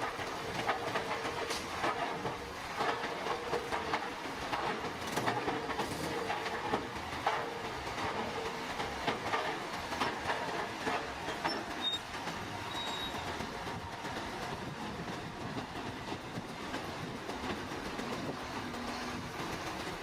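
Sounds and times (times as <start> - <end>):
engine and rolling noise: 0.0 - 20.0
steel tracks clanking: 0.0 - 20.0
high squeal: 12.7 - 13.3.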